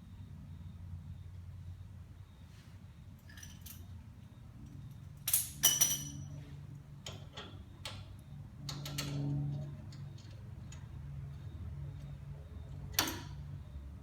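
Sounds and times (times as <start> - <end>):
metal bolts and tools clinking: 3.2 - 3.9, 5.0 - 6.4.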